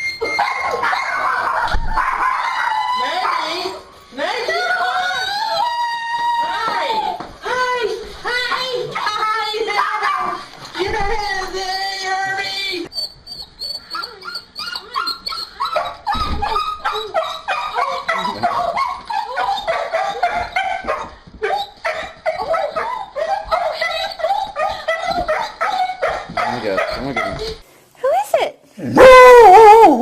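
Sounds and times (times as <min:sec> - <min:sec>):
dog whining excitedly: 0:00.0 - 0:03.8, 0:12.9 - 0:27.6.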